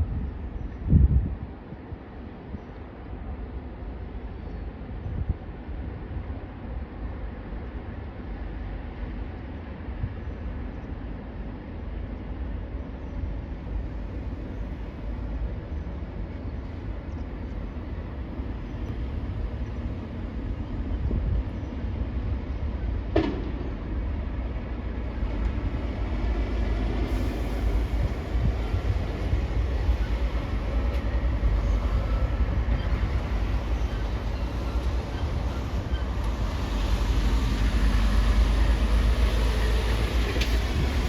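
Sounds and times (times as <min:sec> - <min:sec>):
heavy vehicle rumble: 0:13.6 - 0:41.0.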